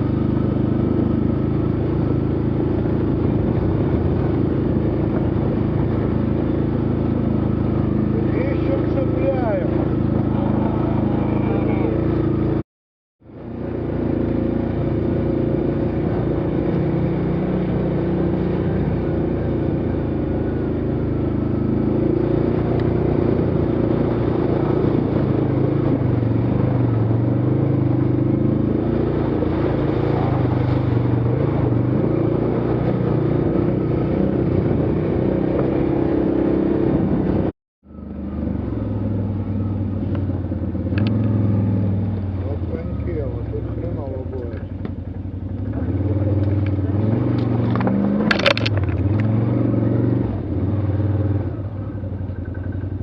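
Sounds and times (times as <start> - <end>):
off-road vehicle engine revving: 0.0 - 12.6, 13.3 - 53.0.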